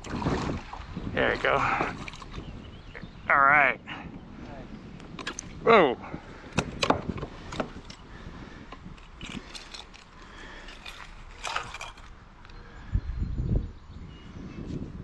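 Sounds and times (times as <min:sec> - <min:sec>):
clicks and knocks of fishing gear: 0:01.8 - 0:02.4, 0:05.0 - 0:05.6, 0:06.4 - 0:12.6.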